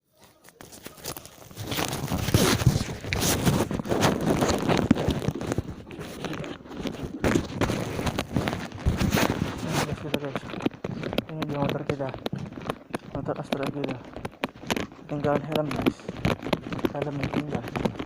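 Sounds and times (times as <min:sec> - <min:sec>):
rustling and scraping: 0:00.0 - 0:18.0.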